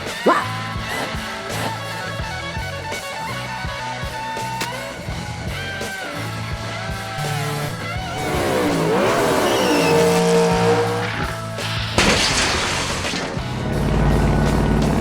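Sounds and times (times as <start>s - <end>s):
background music: 0.0s - 15.0s
race car engine revving: 7.1s - 12.1s, 13.4s - 15.0s
tyres squealing: 7.2s - 12.1s
loud hit: 11.3s - 15.0s.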